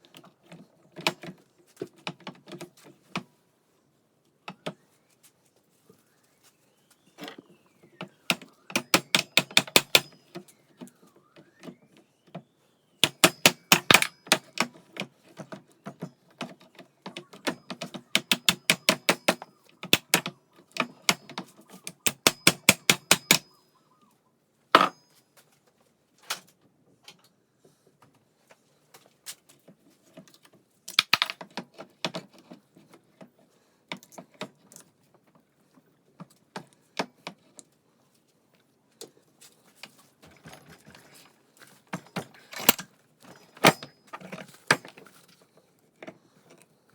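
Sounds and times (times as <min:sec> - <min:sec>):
hand tools clicking on metal: 0:08.3 - 0:10.2, 0:13.0 - 0:14.8, 0:17.1 - 0:23.5, 0:42.0 - 0:42.9.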